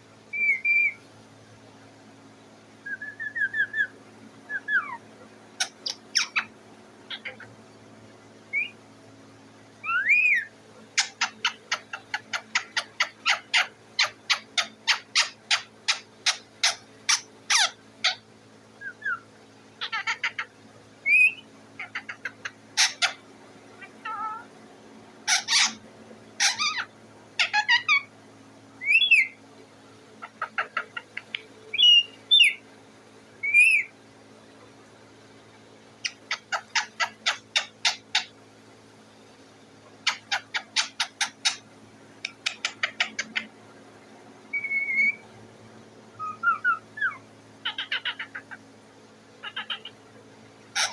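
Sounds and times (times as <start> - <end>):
parrot calling: 0.3 - 1.0, 2.8 - 7.6, 8.5 - 8.8, 9.8 - 18.2, 18.8 - 19.2, 19.8 - 24.5, 25.2 - 25.8, 26.4 - 28.1, 28.8 - 29.4, 30.2 - 32.6, 33.4 - 33.9, 36.0 - 38.3, 40.0 - 43.6, 44.5 - 45.3, 46.1 - 48.7, 49.4 - 50.1
parrot squawks: 0.3 - 1.0, 4.5 - 5.0, 5.6 - 6.5, 7.1 - 7.5, 9.8 - 18.2, 19.8 - 23.2, 23.8 - 24.5, 25.2 - 25.8, 26.4 - 28.1, 28.8 - 29.4, 30.2 - 32.6, 33.4 - 33.9, 36.0 - 38.3, 40.0 - 41.6, 42.2 - 43.5, 44.5 - 45.2, 46.2 - 48.6, 49.4 - 50.0
parrot whistles: 0.3 - 1.0, 2.8 - 3.9, 4.5 - 5.0, 8.5 - 8.8, 9.8 - 11.6, 18.8 - 19.2, 21.0 - 22.2, 28.8 - 29.4, 31.7 - 32.6, 33.4 - 33.9, 44.5 - 45.2, 46.2 - 48.6.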